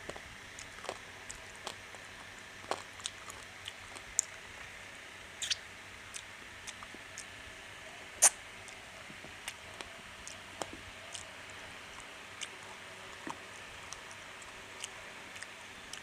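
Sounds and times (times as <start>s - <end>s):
person chewing food: 0.0s - 4.4s, 8.6s - 16.0s
faint steady hiss: 0.0s - 16.0s.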